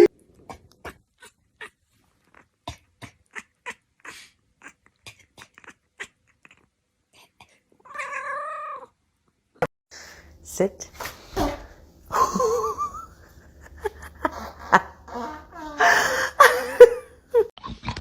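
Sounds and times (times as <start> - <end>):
cat meowing: 7.9 - 8.9.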